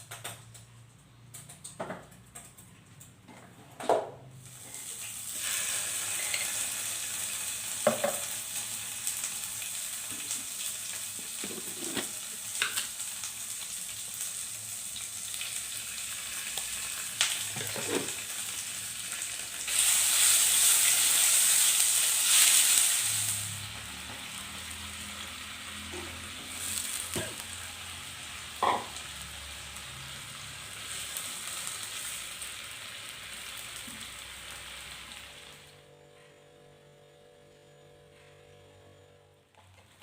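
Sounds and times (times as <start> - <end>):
food sizzling in hot oil: 4.4 - 35.7.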